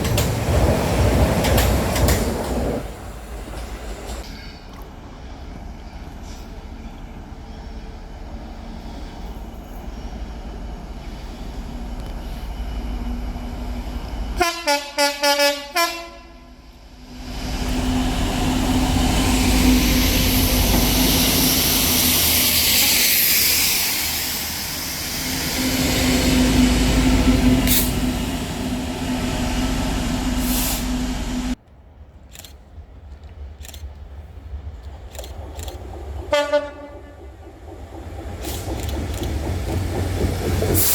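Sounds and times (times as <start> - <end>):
train passing loudly: 0.0 - 31.6, 34.3 - 40.9
train horn blasts: 14.4 - 16.6, 36.3 - 37.2.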